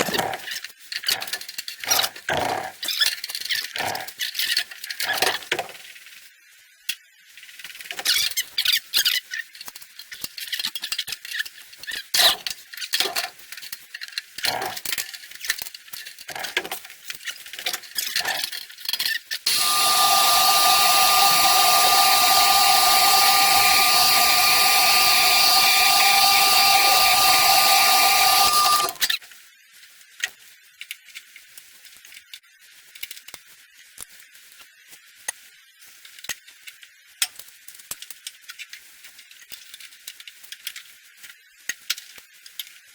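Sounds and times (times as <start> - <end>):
power tool running: 19.5 - 29.1.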